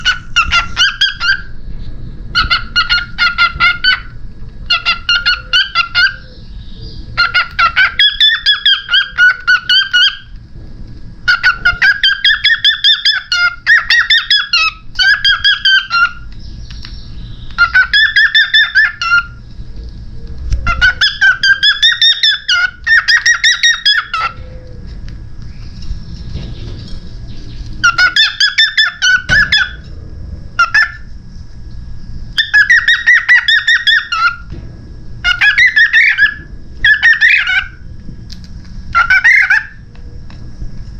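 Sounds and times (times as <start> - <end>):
cockatiel chattering chirps: 0.0 - 1.5, 2.3 - 6.5, 7.2 - 10.3, 11.2 - 16.9, 17.5 - 19.4, 20.7 - 24.4, 27.5 - 29.9, 30.6 - 31.1, 32.4 - 34.5, 35.2 - 37.8, 38.9 - 39.8.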